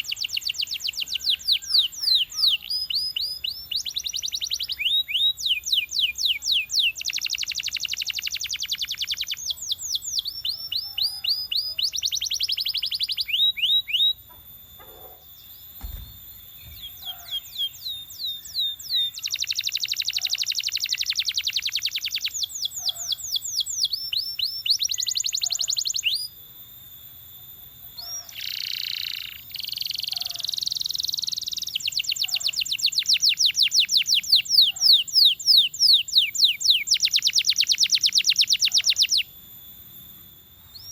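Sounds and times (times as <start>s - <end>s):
canary singing trilled rolls: 0.0s - 26.3s, 27.9s - 40.9s
low thump: 15.8s - 17.0s.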